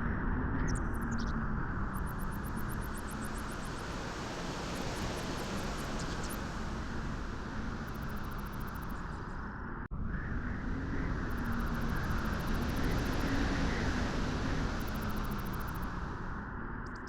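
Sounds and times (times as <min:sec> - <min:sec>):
beach wind rushing: 0:02.0 - 0:09.5, 0:10.3 - 0:16.5.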